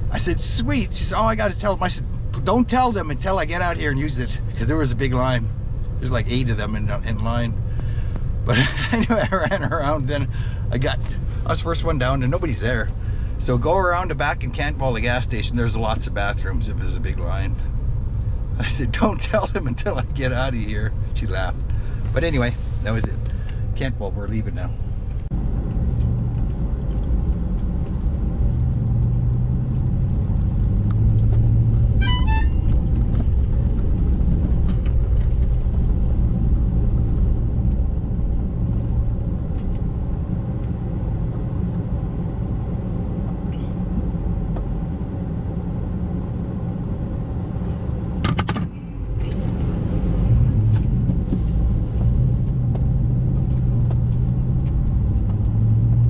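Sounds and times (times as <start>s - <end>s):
low hum: 0.0s - 56.0s
truck engine and road rumble: 0.0s - 56.0s.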